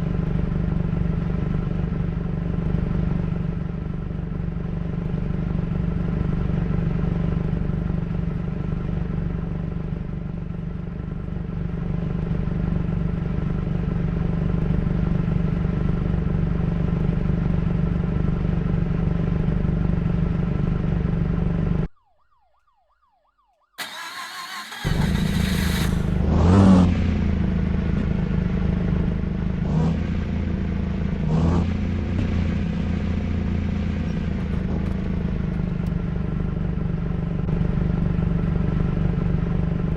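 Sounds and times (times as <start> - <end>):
motorcycle engine revving: 23.8 - 27.5.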